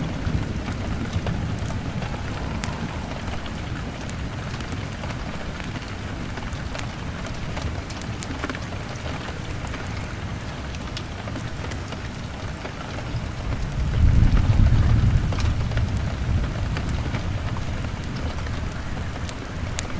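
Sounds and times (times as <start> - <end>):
deep low rumble: 0.0 - 5.5
heavy rain on a window: 0.0 - 19.9
log fire crackling: 0.0 - 19.9.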